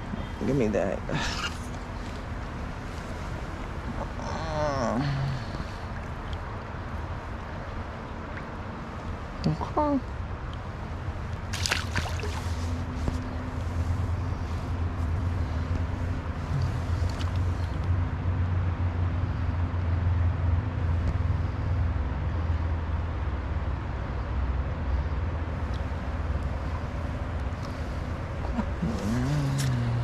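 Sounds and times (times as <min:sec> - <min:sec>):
stream rushing: 0:11.3 - 0:13.0.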